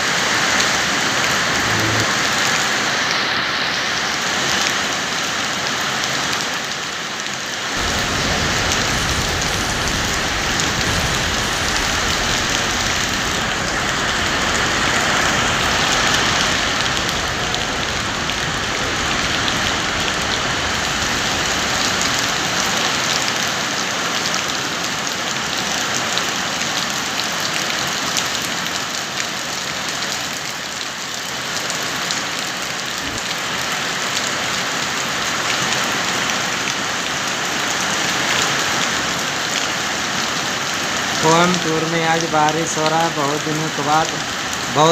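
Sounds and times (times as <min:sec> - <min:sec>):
heavy rain: 0:00.0 - 0:44.9
low rumble: 0:01.2 - 0:02.6, 0:07.8 - 0:23.7.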